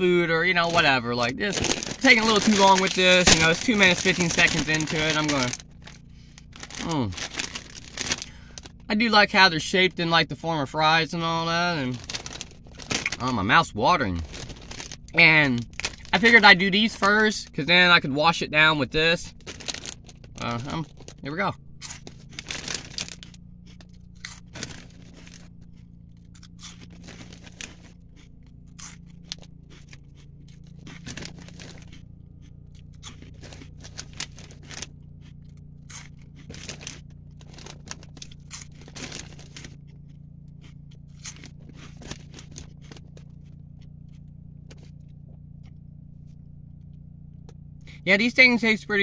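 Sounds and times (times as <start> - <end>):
low hum: 0.0 - 49.0
snack bag rustling: 0.4 - 8.8, 11.8 - 13.4, 14.0 - 17.2, 19.3 - 21.2, 21.8 - 45.3
crunching of chewed snack: 0.4 - 8.9, 11.8 - 17.2, 19.2 - 48.0.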